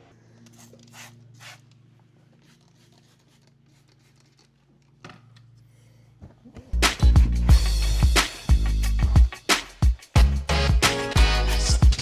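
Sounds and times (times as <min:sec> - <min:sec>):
funk music with heavy beat: 0:06.8 - 0:12.0.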